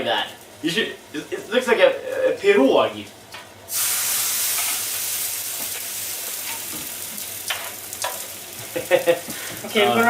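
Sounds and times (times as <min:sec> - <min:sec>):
food sizzling in frying pan: 0:03.6 - 0:10.0.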